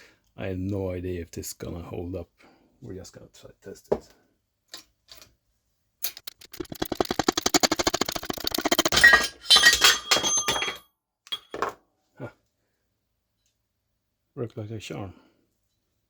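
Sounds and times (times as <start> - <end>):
rapid metal-on-metal impacts: 6.0 - 10.8
ringing metallic clanks: 8.9 - 11.6.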